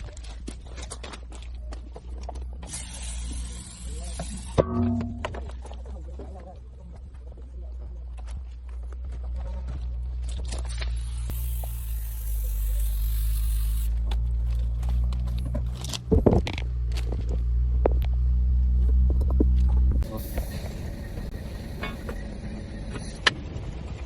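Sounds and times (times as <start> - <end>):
air hiss: 11.3 - 14.0, 20.0 - 22.2
heavy vehicle engine running: 11.3 - 24.0.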